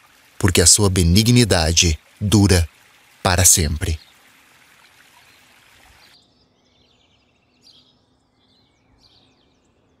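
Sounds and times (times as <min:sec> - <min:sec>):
running water hiss: 0:00.0 - 0:06.2
birds chirping and trilling: 0:00.1 - 0:10.0.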